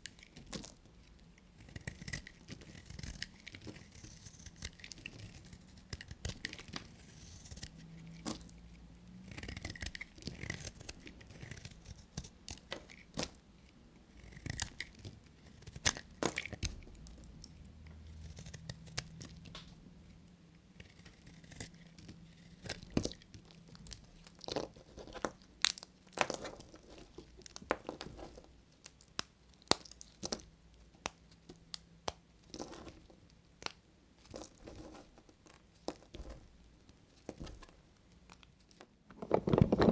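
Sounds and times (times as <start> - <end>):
knife cutting soap: 0.0 - 8.5, 9.2 - 13.4, 14.0 - 19.5, 20.7 - 37.8
soap pieces cracking: 21.0 - 33.0.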